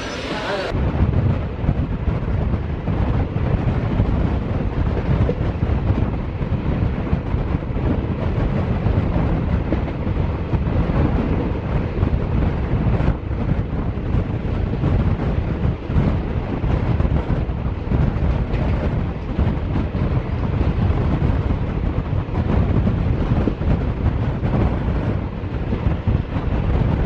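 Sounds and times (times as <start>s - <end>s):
moving train rumble: 0.0s - 27.0s
wind rushing across microphone: 0.0s - 27.0s.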